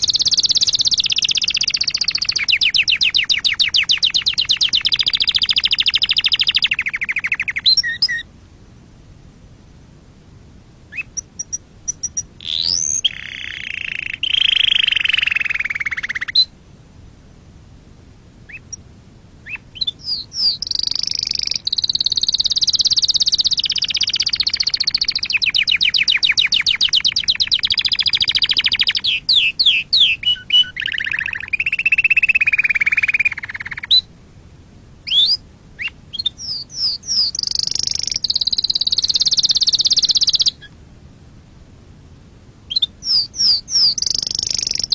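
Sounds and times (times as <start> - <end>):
canary singing: 0.0 - 8.3, 10.9 - 16.5, 18.4 - 18.8, 19.4 - 34.1, 35.0 - 40.8, 42.7 - 44.9.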